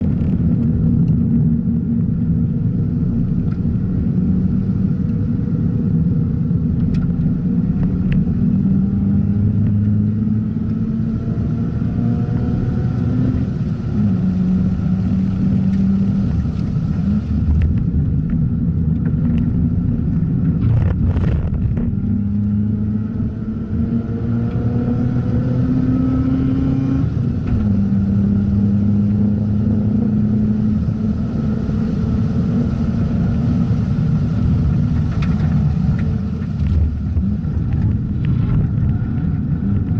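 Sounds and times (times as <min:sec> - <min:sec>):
rotary engine revving: 0:20.6 - 0:27.1.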